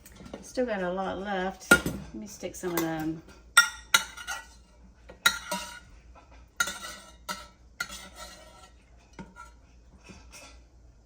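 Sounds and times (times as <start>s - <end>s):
metal utensil clinking on pot and jars: 0.0s - 5.9s, 6.6s - 9.6s.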